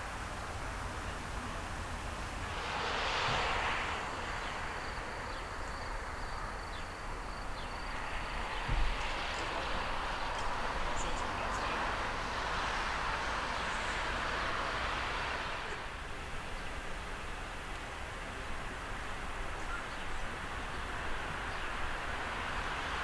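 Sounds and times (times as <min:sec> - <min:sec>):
aircraft engines rushing: 0:00.0 - 0:23.0
brief low thump: 0:08.6 - 0:09.1.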